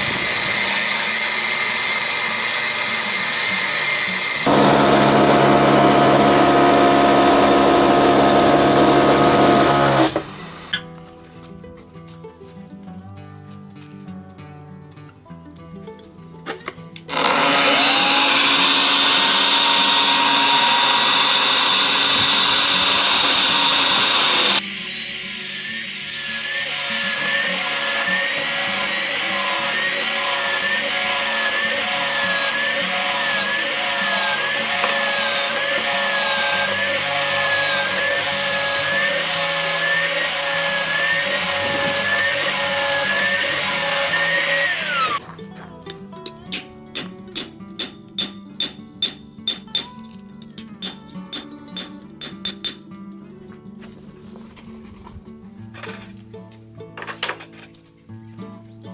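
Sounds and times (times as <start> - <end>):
electric power tool running: 0.0 - 10.9, 17.1 - 45.2.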